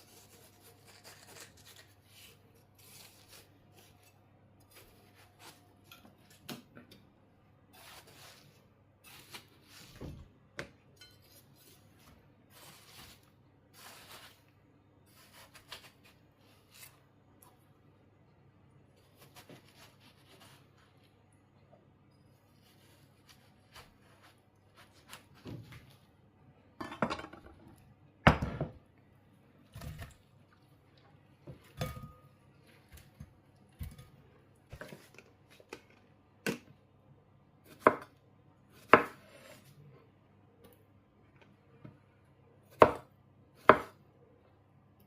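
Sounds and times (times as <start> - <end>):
knife on chopping board: 38.8 - 39.7.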